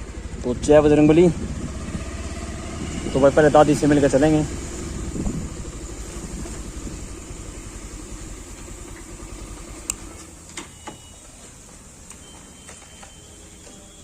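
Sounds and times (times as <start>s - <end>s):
vehicle engine running low: 0.0s - 14.0s
sharp clicks: 9.7s - 11.0s.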